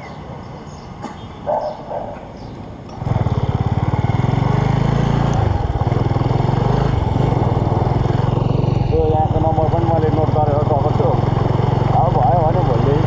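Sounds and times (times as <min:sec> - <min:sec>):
motorcycle engine running: 0:02.9 - 0:13.0.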